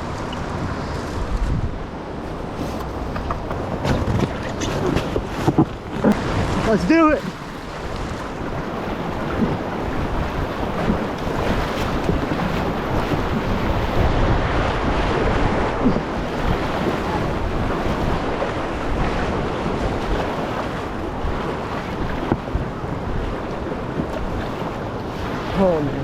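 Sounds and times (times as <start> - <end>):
wind buffeting microphone: 0.0 - 26.0
whitewater rushing: 5.8 - 26.0.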